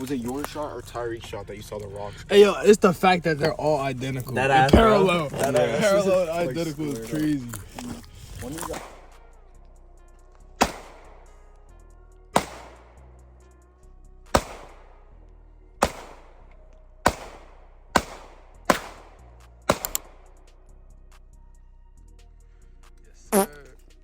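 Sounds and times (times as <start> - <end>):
background music: 0.0 - 24.0
gunshots echoing: 4.7 - 5.4, 8.7 - 9.4, 10.6 - 11.4, 12.4 - 13.0, 14.3 - 15.1, 15.8 - 20.4.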